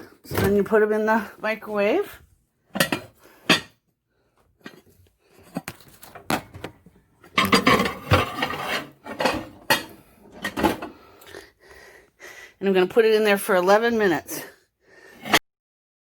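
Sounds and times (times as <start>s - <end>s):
stoneware dish knocking and clinking: 2.8s - 3.8s
stoneware scraping and clattering: 2.8s - 3.8s, 7.3s - 10.9s.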